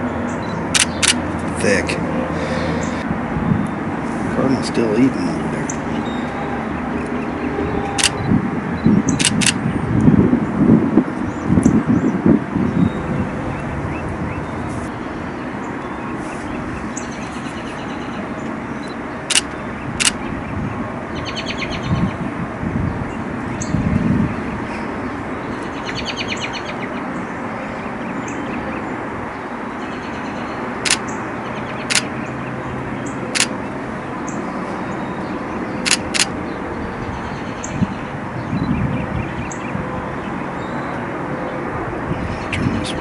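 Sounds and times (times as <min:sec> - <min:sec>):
birds chattering: 0:00.0 - 0:08.2, 0:29.8 - 0:39.8, 0:42.1 - 0:43.0
sharp clicks: 0:00.7 - 0:01.2, 0:08.0 - 0:08.2, 0:09.1 - 0:09.6, 0:18.8 - 0:20.2, 0:30.8 - 0:31.1, 0:31.9 - 0:32.1, 0:33.4 - 0:33.6, 0:35.8 - 0:36.4.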